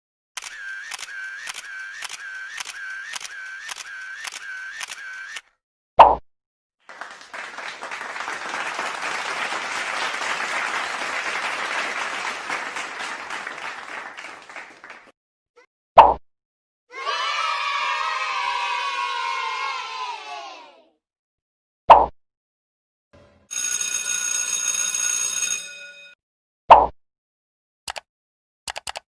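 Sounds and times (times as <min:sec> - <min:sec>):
applause: 0:06.8 - 0:15.2
quick evenly spaced clicks: 0:28.7 - 0:29.0.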